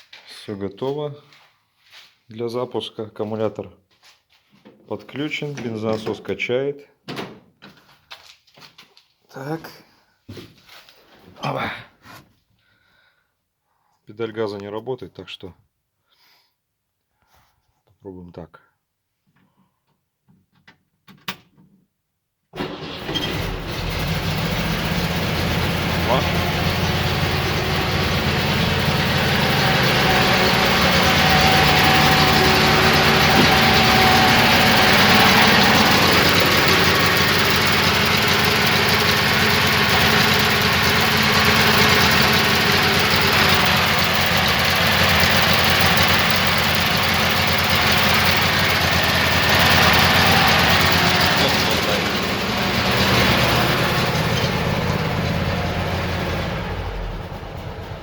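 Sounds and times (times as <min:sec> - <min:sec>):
car engine fast idle: 0:22.6 - 0:58.0.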